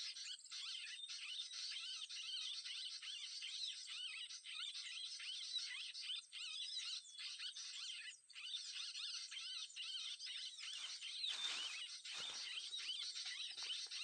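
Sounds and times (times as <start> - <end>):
birds twittering and chirping: 0.0 - 14.0
short rustle: 10.6 - 14.0.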